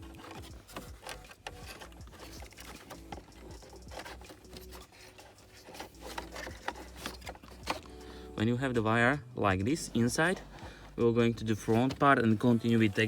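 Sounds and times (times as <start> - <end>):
wires clicking and rustling: 0.0 - 8.4.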